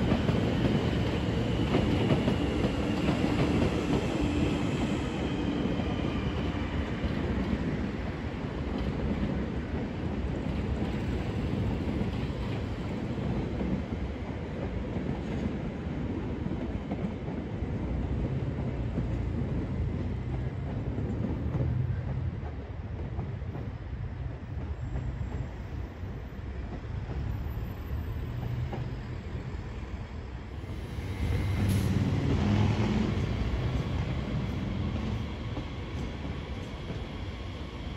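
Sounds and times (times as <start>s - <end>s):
train clattering over rails: 0.0s - 7.6s, 30.6s - 37.8s
train wheels rumbling: 0.0s - 9.4s, 18.0s - 37.9s.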